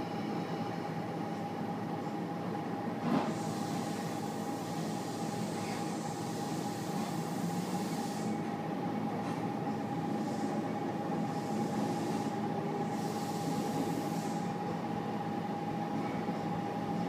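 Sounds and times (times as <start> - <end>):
hiss: 3.2 - 8.4, 11.6 - 14.4.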